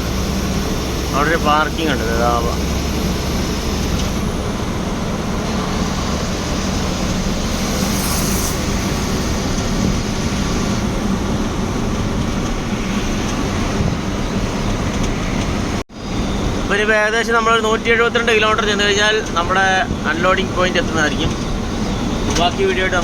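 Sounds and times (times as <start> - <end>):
truck engine and road noise: 0.0 - 23.0
brief hiss: 7.4 - 9.7.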